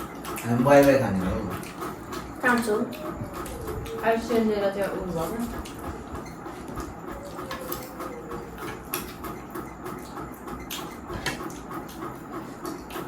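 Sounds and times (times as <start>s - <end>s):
person chewing noodles: 5.6s - 13.0s.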